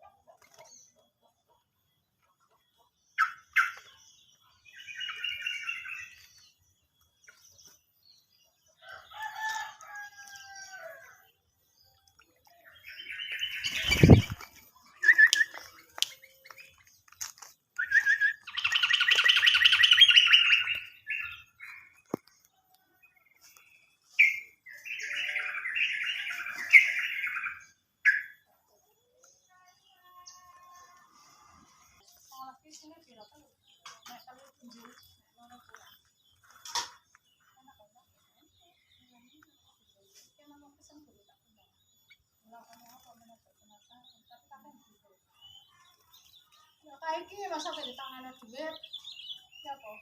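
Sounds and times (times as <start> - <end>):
bird chattering calls: 13.0 - 15.7, 17.8 - 21.6
wing flutters: 13.4 - 15.8.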